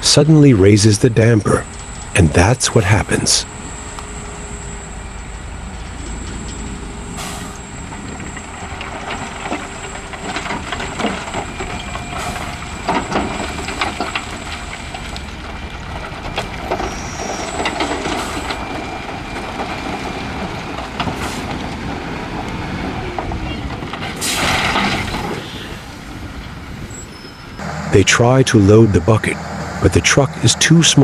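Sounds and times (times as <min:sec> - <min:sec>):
dump truck running: 0:00.0 - 0:31.0.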